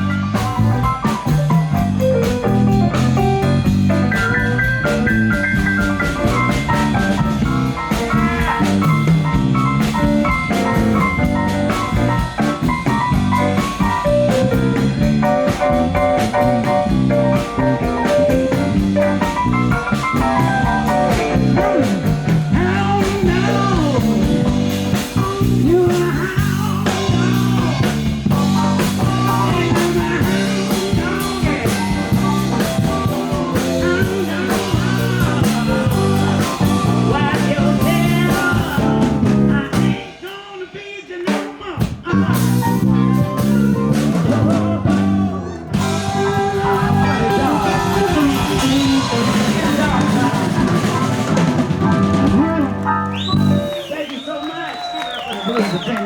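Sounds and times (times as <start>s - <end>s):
live blues-rock band: 0.0s - 56.0s
person singing: 16.4s - 52.8s.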